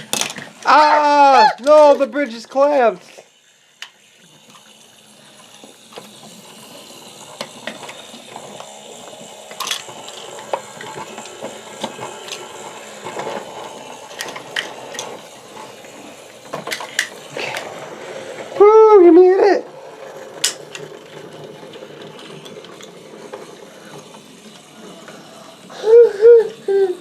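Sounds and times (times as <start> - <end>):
toy train motor whirring: 0.0 - 27.0.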